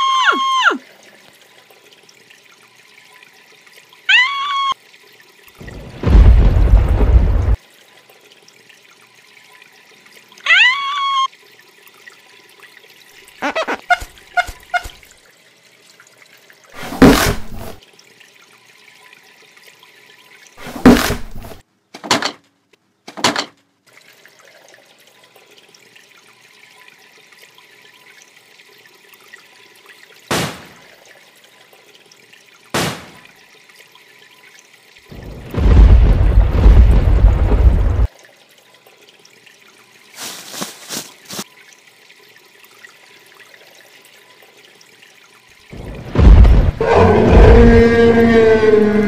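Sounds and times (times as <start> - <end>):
running water hiss: 0.0 - 21.7, 24.1 - 49.0
heavy thuds and sharp strikes: 16.8 - 17.8, 30.3 - 30.8, 32.8 - 33.2, 46.0 - 46.8.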